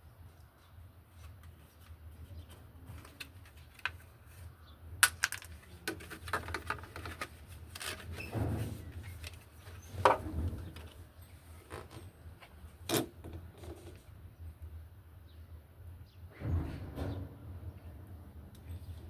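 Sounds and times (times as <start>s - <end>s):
plastic and metal parts clicking: 5.0s - 8.2s.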